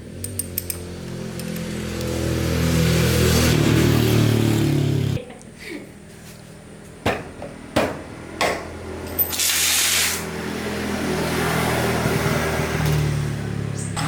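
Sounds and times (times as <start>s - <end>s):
hissing spray: 9.4s - 10.3s.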